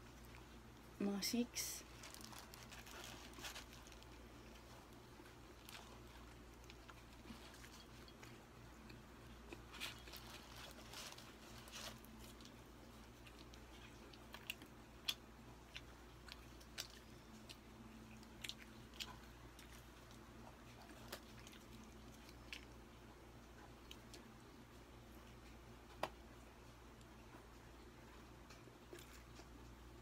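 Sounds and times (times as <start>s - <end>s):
paper wrapper crinkling: 1.8s - 8.2s, 9.6s - 14.2s
person chewing: 1.9s - 24.4s, 27.0s - 30.0s.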